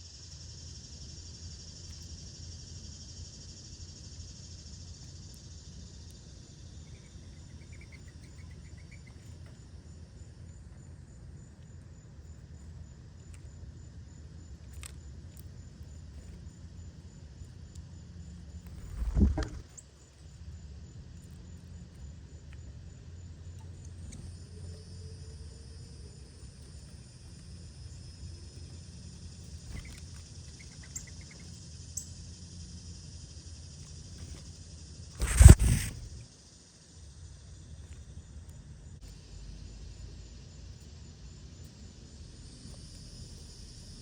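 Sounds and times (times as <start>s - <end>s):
steady low rumble: 18.6s - 19.8s
quick chirps: 18.7s - 19.8s, 35.2s - 36.2s
high steady buzz: 35.2s - 36.2s.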